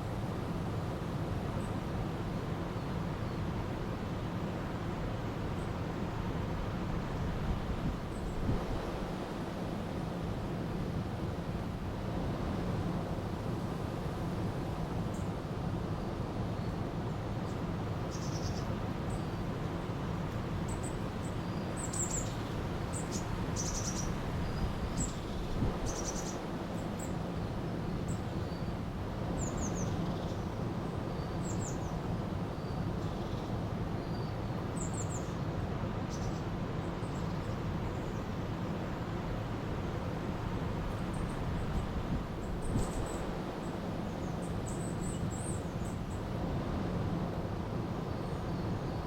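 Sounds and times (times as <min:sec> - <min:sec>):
small birds chirping: 0:20.7 - 0:26.4.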